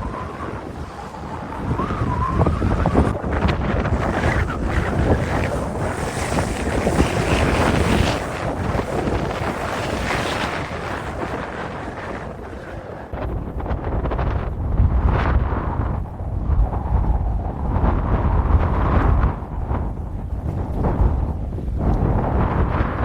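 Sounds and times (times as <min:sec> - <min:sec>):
faint wavering whistle: 0:00.0 - 0:03.0
blizzard wind buffeting microphone: 0:00.0 - 0:23.0.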